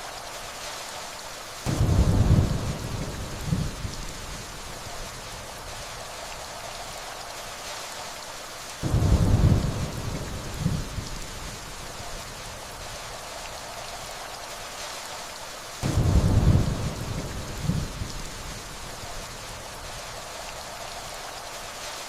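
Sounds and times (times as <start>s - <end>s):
gentle rainfall: 0.0s - 22.0s
distant thunder rumble: 1.7s - 4.7s, 8.8s - 12.0s, 15.8s - 19.0s.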